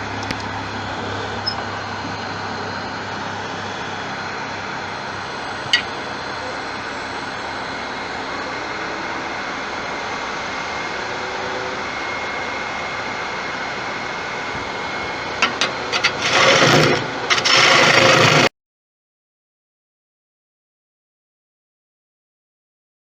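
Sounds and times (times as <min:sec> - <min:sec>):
wood lathe spinning: 0:05.1 - 0:08.9, 0:13.8 - 0:18.5
turning tool cutting wood: 0:05.7 - 0:06.0, 0:14.5 - 0:18.5.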